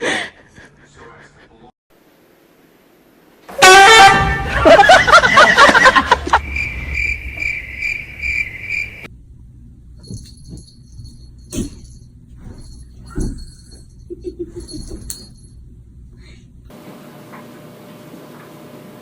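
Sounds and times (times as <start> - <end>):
loud horn honk: 3.5 - 4.8
jumbled loud pitched noise: 6.4 - 9.1.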